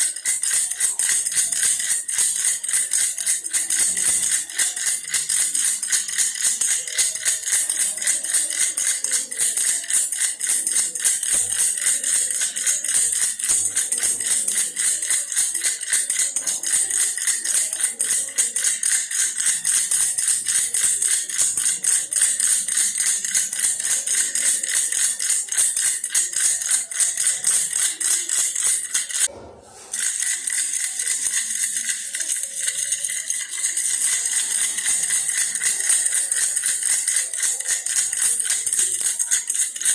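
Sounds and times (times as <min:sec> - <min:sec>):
baby rattle jingling: 0:00.0 - 0:29.3, 0:29.9 - 0:39.9.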